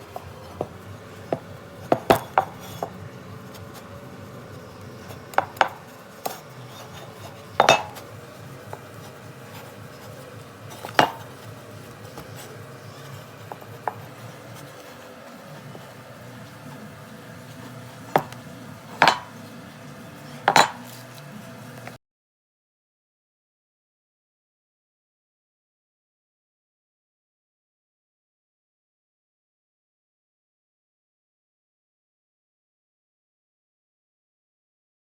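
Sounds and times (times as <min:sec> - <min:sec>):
hand tool tapping metal pipe: 0:00.0 - 0:03.9, 0:04.9 - 0:15.0, 0:19.0 - 0:19.4, 0:20.5 - 0:21.0.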